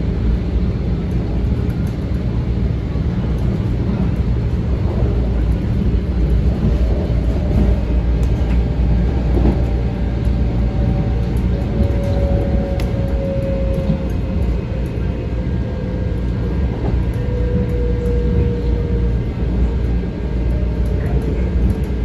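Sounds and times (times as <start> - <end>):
faint train whine: 0.0 - 22.0
train rumbling on rails: 0.0 - 22.0.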